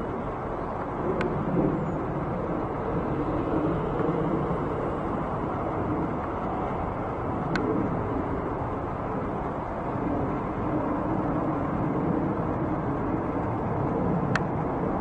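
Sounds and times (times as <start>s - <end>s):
jet airliner engine rumble: 0.0s - 15.0s
faint clicks: 1.1s - 1.4s.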